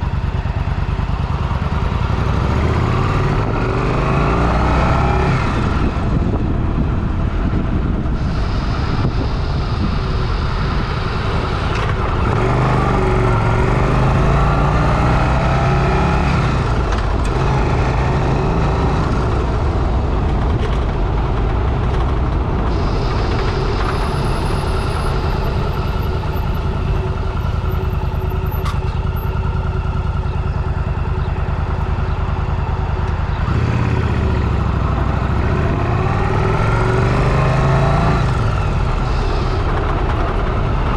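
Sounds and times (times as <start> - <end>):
motorcycle engine running: 0.0 - 40.9
wind rush on microphone: 2.9 - 28.4.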